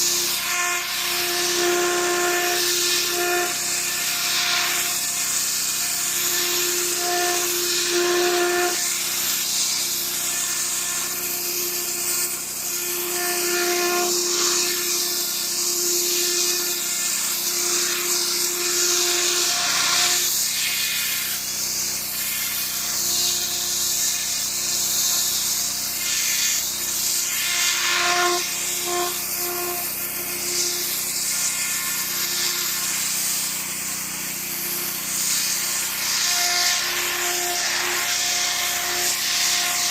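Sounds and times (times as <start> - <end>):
pressure washer spray hiss: 0.0 - 39.9.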